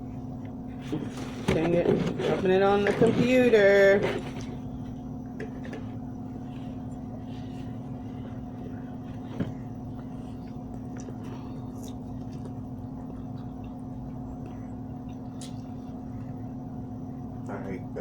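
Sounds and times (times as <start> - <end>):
steady machine hum: 0.0 - 18.0
small clicks of eating: 10.4 - 16.4.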